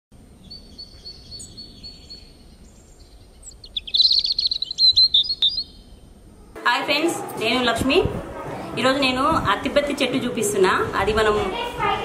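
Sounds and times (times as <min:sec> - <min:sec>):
songbirds chirping and trilling: 0:00.2 - 0:06.6.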